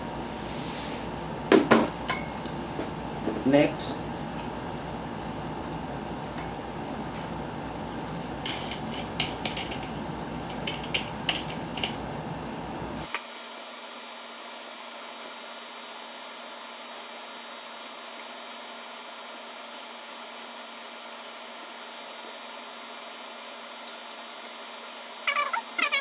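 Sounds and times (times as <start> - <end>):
fan parts clicking and knocking: 8.4 - 12.2.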